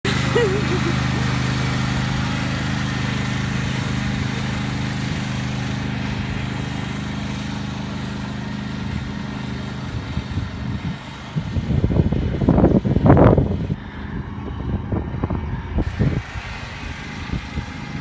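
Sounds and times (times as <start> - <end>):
lawnmower engine running: 0.0 - 18.0.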